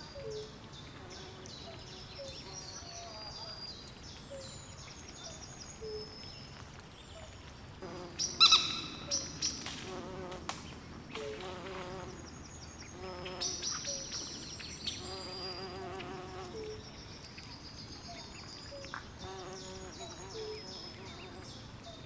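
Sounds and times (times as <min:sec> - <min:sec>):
insects buzzing: 0:07.8 - 0:16.8, 0:18.9 - 0:21.6.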